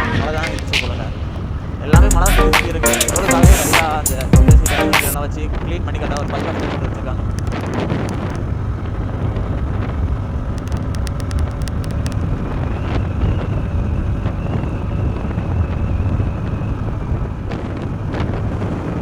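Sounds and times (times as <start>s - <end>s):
wind rushing on microphone: 5.2s - 19.0s.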